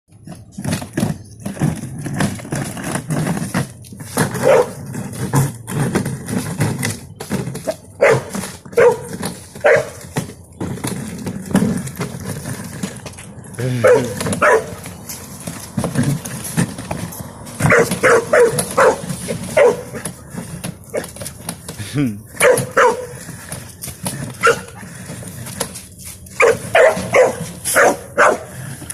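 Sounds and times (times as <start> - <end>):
dog barking: 4.4 - 4.8, 8.0 - 10.0, 13.8 - 14.7, 17.7 - 19.0, 19.6 - 20.0, 22.4 - 23.1, 24.4 - 24.7, 26.4 - 28.5.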